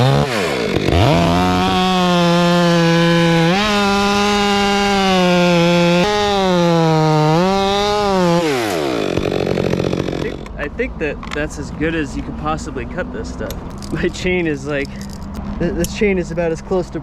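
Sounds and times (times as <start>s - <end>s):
chainsaw cutting hard wood: 0.0s - 10.6s.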